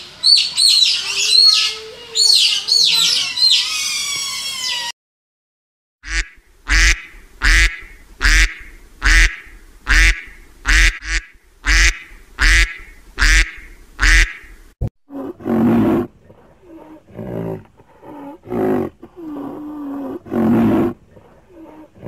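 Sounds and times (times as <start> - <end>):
duck quacking: 6.0 - 14.6.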